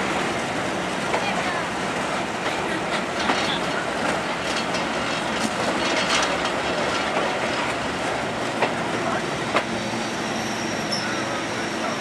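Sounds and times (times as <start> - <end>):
passenger train running: 0.0 - 12.0
wheels clicking over rail joints: 2.4 - 8.9.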